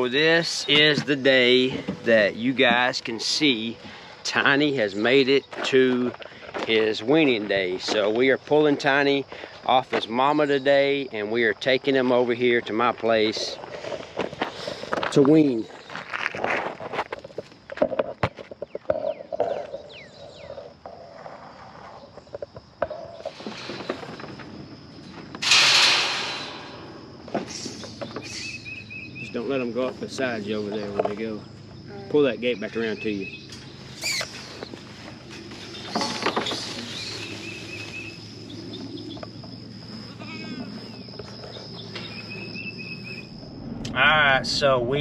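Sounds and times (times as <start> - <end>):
high-pitched insect drone: 19.0 - 45.0
knocks and rustling: 22.2 - 28.4, 34.6 - 38.1
quick falling chirps: 33.9 - 34.8
goats bleating: 40.2 - 40.7.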